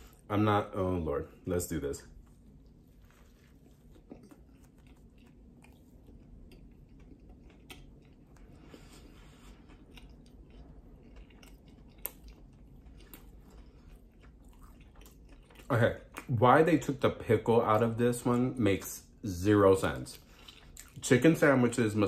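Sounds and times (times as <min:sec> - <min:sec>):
chewing crispy sandwich: 0:02.0 - 0:17.0, 0:19.8 - 0:21.7.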